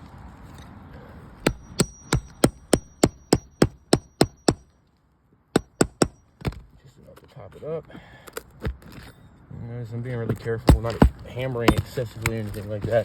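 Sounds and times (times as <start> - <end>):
hammer tapping metal nail puller: 1.5 - 4.6, 5.6 - 6.6.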